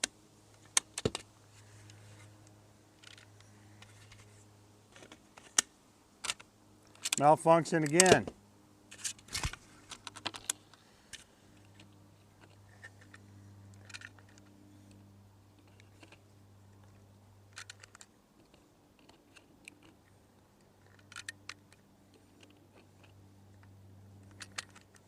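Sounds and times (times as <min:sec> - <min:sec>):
low steady hum: 0:00.0 - 0:25.0
rifle action clicks and clacks: 0:05.0 - 0:07.2, 0:07.8 - 0:08.3, 0:17.5 - 0:20.0, 0:20.8 - 0:21.8, 0:24.2 - 0:25.0.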